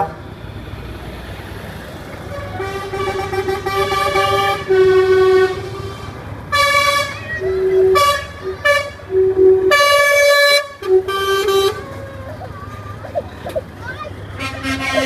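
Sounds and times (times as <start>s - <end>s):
truck engines rumbling: 0.0s - 15.0s
lorry horns blasting: 2.3s - 13.4s, 14.2s - 15.0s.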